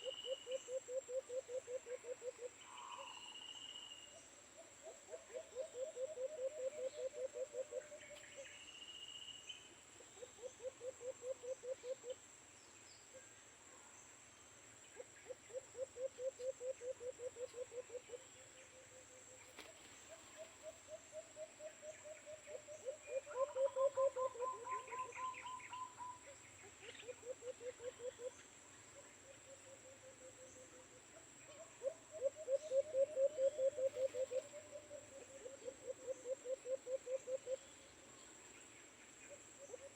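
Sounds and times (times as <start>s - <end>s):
bird chirps: 19.6s - 30.8s
doves cooing: 31.5s - 37.6s.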